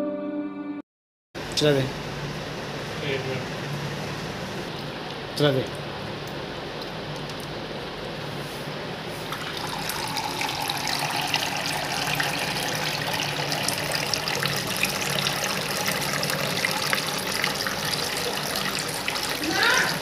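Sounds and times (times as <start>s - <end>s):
fountain water trickling and splashing: 9.6s - 20.0s.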